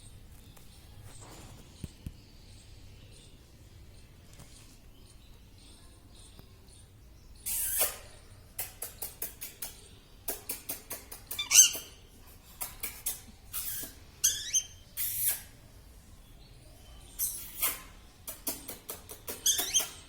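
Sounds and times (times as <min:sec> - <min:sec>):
parakeet clicks and chirps: 0:07.4 - 0:15.6, 0:17.2 - 0:20.0
parakeet pitched call: 0:13.6 - 0:15.3.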